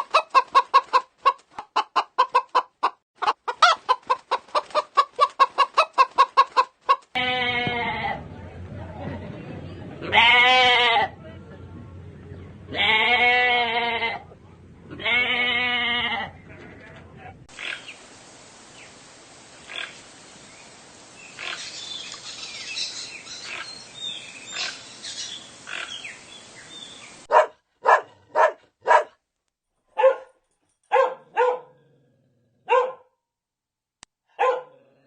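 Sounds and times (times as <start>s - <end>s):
steady hiss: 17.5s - 27.3s
dog barking: 27.3s - 29.2s, 29.9s - 31.8s, 32.6s - 33.1s, 34.3s - 34.8s.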